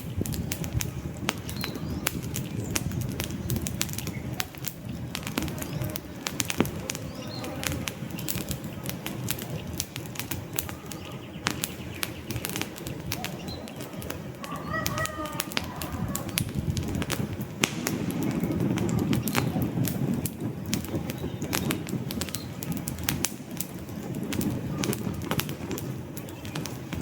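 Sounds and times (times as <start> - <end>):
wood fire crackling and popping: 0.0 - 27.0
bird calling: 10.7 - 16.6.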